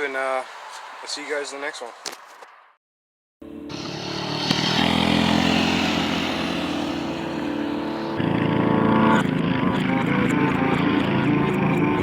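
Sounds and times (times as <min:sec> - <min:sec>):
small gasoline engine running: 0:03.7 - 0:12.0.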